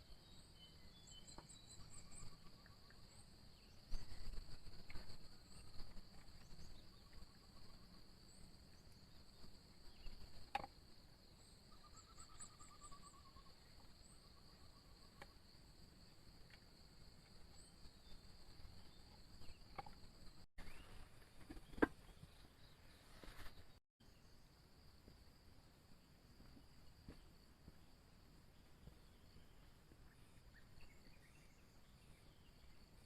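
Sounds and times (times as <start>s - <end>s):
high-pitched insect chorus: 0.0s - 20.8s.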